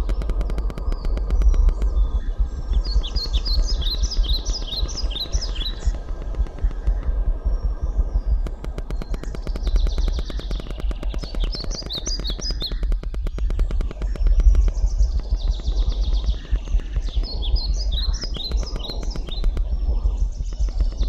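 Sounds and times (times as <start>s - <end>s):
birds chirping: 0.0s - 21.0s
heavy low rumble: 0.0s - 21.0s
fast even ticking: 8.4s - 17.4s.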